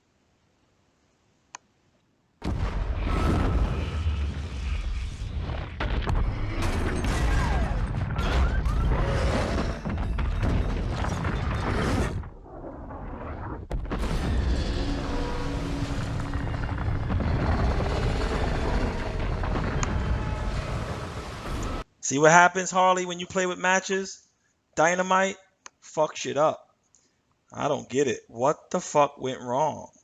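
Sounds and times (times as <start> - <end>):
explosions and deep booms: 2.4 - 21.8.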